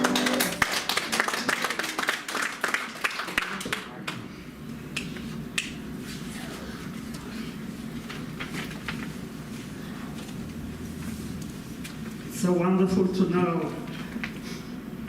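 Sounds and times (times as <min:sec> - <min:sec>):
congregation clapping: 0:00.0 - 0:04.2
low room hum: 0:00.0 - 0:15.0.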